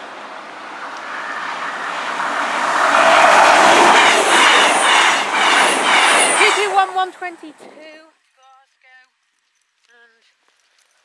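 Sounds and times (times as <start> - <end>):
wheels clickety-clack: 0.0 - 7.9
train passing at speed: 0.0 - 8.0.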